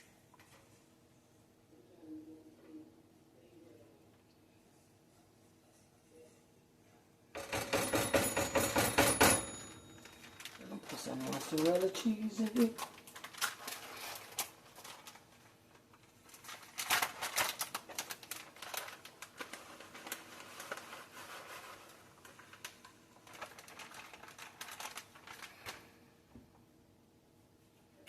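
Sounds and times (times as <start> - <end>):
utensil scraping against pot: 19.5 - 22.4.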